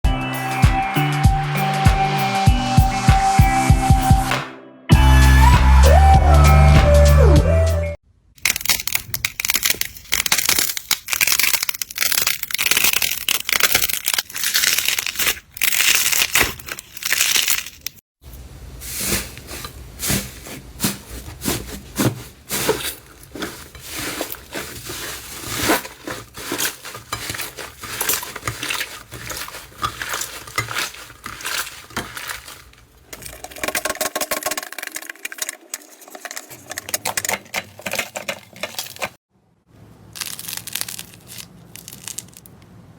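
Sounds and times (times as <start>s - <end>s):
slime squishing and popping: 8.4s - 17.8s, 40.2s - 42.5s.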